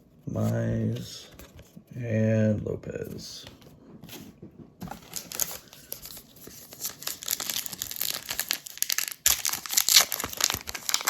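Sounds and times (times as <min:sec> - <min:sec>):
wrapper tearing and crinkling: 0:05.0 - 0:11.0.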